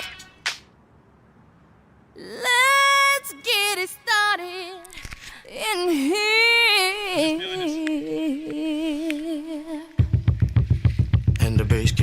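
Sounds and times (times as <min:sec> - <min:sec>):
woman singing long notes: 0:05.5 - 0:10.0.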